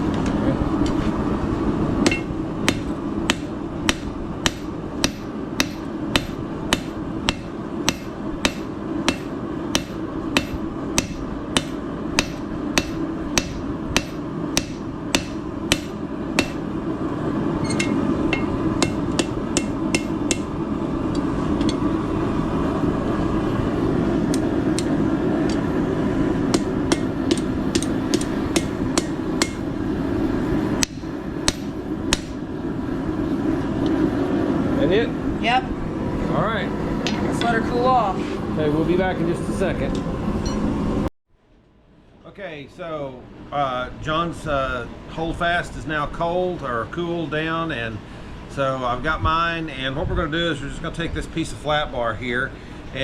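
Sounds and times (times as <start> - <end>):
steady rushing noise: 0.0 - 41.1
hammer striking metal on anvil: 2.0 - 16.7, 17.6 - 21.9, 24.3 - 25.7, 26.5 - 29.7, 30.8 - 32.4.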